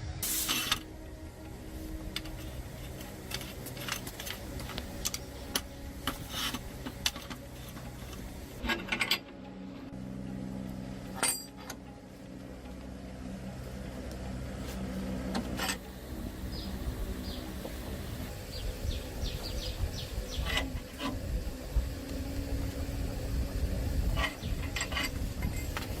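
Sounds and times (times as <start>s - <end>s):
low steady hum: 0.0s - 26.0s
metallic clinks of tools: 11.2s - 11.8s.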